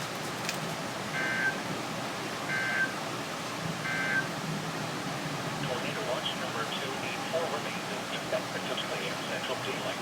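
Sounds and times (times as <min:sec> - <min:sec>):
radio hiss: 0:05.6 - 0:10.0.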